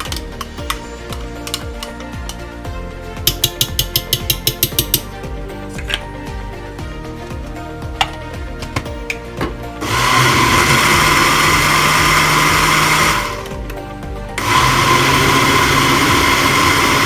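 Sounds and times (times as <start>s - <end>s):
electric blender motor running: 9.8s - 17.0s.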